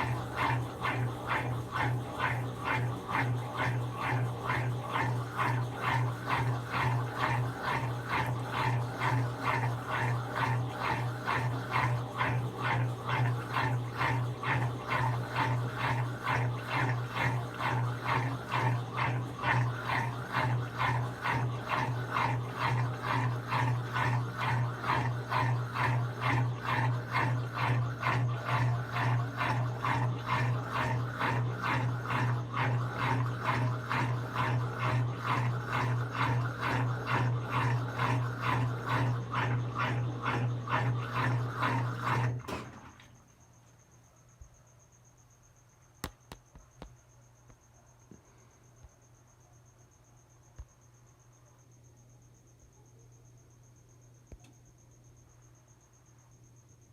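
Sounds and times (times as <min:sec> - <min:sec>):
washing machine running: 0:00.0 - 0:43.5.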